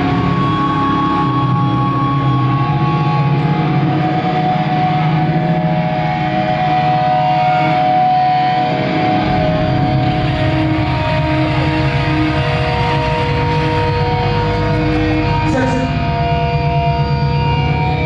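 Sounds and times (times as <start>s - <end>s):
distorted electric guitars with feedback: 0.0s - 18.0s
heavy low drone: 0.0s - 18.0s.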